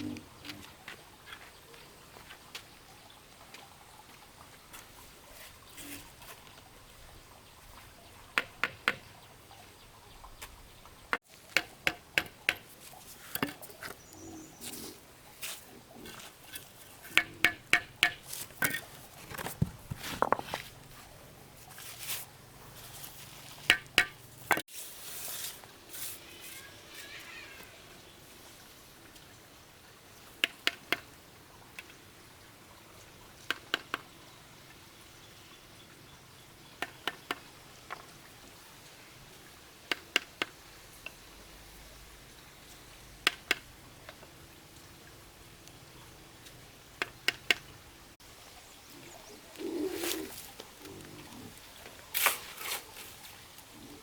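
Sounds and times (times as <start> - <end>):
sharp knocks or clicks: 17.1 - 18.2.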